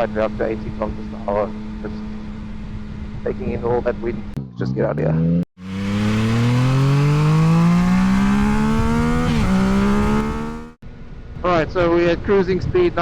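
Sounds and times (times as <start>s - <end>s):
motorcycle engine accelerating: 0.0s - 4.4s, 5.6s - 10.8s.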